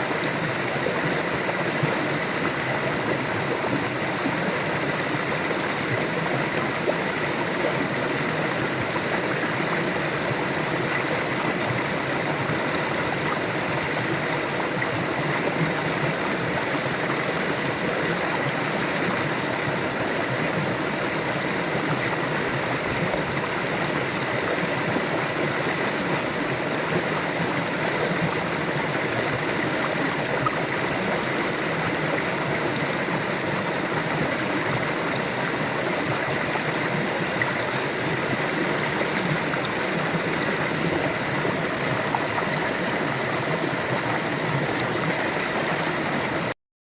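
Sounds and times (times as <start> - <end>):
river water rushing over rocks: 0.0 - 46.5.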